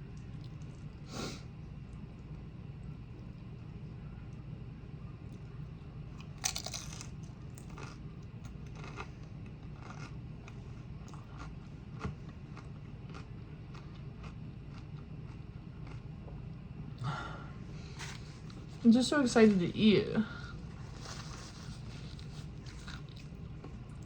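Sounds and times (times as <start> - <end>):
steady low hum: 0.0 - 24.0
chips crunching while chewed: 6.2 - 16.0, 20.9 - 23.4.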